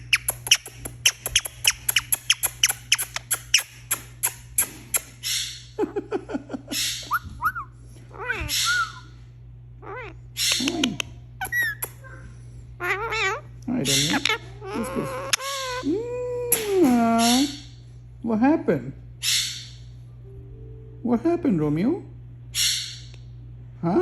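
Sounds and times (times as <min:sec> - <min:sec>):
parakeet squeaky calls: 0:00.0 - 0:03.9, 0:05.2 - 0:05.7, 0:06.8 - 0:09.2, 0:09.8 - 0:10.6, 0:11.4 - 0:12.0, 0:12.8 - 0:15.9, 0:19.2 - 0:19.9, 0:22.5 - 0:23.1
parakeet clicking chirps: 0:00.0 - 0:05.5, 0:09.9 - 0:12.0, 0:13.0 - 0:14.4.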